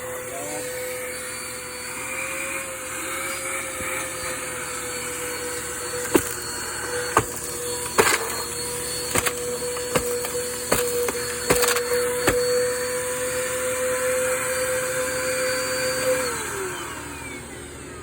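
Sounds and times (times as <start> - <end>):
vacuum cleaner motor whine: 0.0 - 18.0.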